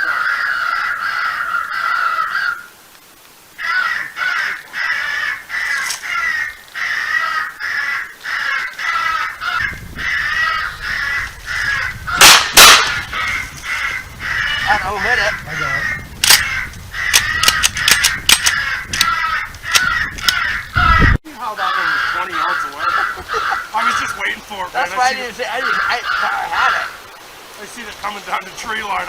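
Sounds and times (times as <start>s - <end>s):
crows cawing: 0.0s - 2.8s, 3.5s - 29.0s
shotgun blasts: 12.2s - 13.2s.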